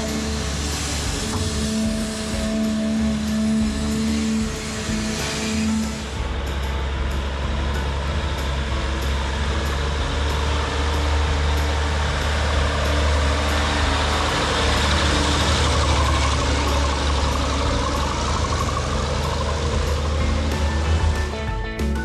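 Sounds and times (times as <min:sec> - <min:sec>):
heavy equipment engine running: 0:00.0 - 0:22.0.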